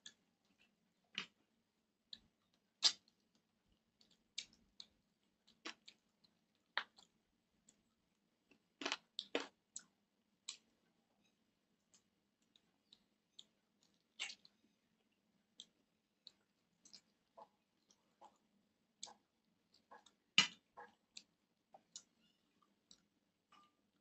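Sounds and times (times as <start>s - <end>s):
man chewing food: 2.1s - 24.0s
wet mouth clicks and lip smacks: 13.8s - 14.5s.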